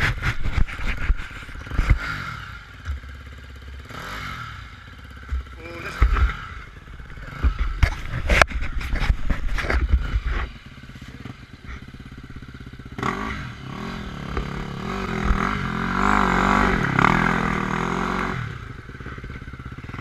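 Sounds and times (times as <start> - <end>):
knocks and clatter: 0.0 - 2.2, 5.2 - 10.6
dirt bike engine revving: 0.0 - 20.0.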